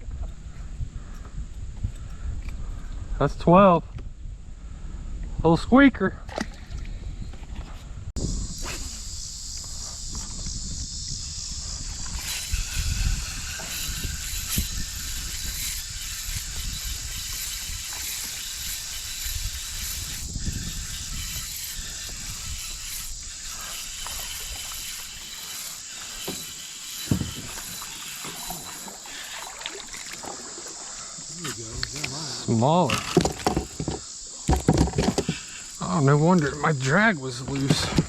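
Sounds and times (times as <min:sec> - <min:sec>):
fishing reel clicking and whirring: 0:09.5 - 0:30.2.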